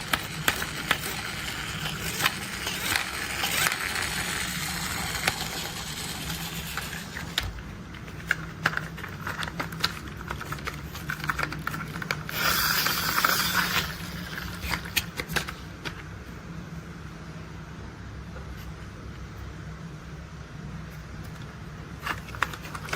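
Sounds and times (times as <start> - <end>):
plastic toy clicks and rattles: 0.0 - 7.5, 8.2 - 15.5
steady low hum: 0.0 - 22.9.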